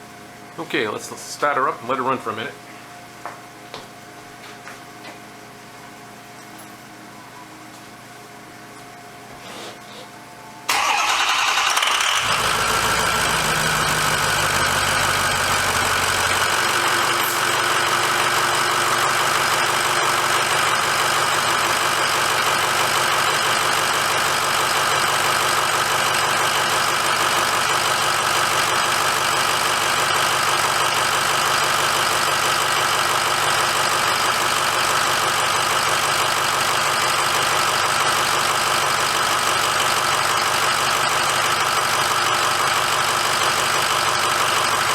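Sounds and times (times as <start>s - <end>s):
diesel engine idling: 10.7s - 44.9s.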